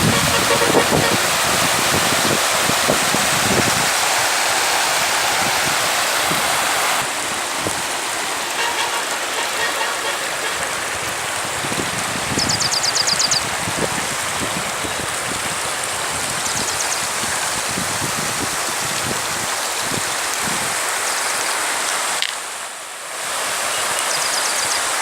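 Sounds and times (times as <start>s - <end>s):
wind on microphone: 0.0s - 7.9s, 10.6s - 20.8s
rushing water: 0.0s - 25.0s.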